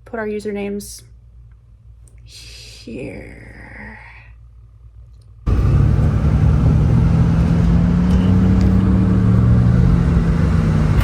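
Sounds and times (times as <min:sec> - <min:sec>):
road noise: 0:05.5 - 0:11.0
truck engine drone: 0:05.5 - 0:11.0.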